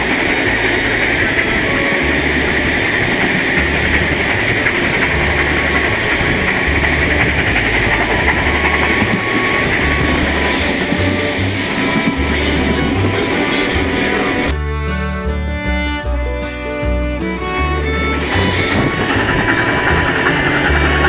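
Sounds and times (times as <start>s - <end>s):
wheels clicking over rail joints: 0.0s - 14.5s, 18.2s - 21.0s
train rumble and rail noise: 0.0s - 14.6s, 17.8s - 21.0s
steam hiss: 10.5s - 11.9s.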